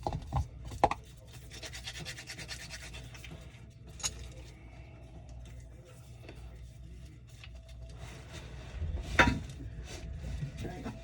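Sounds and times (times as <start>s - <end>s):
low steady hum: 0.0s - 11.0s
rapid hand scraping: 1.0s - 3.5s.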